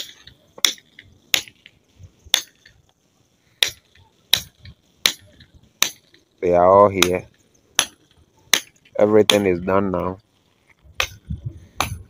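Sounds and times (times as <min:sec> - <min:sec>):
hammer strikes: 0:03.6 - 0:06.2, 0:07.8 - 0:09.5.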